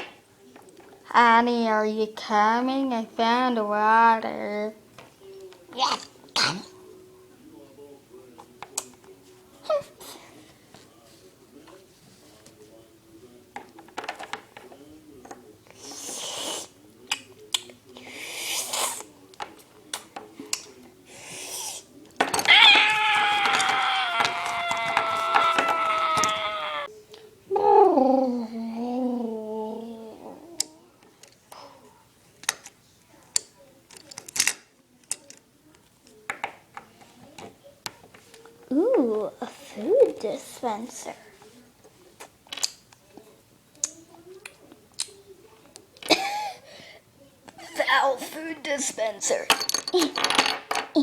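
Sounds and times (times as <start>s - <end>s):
plastic toys clicking and tapping: 13.6s - 15.4s, 32.4s - 38.4s, 42.5s - 42.9s.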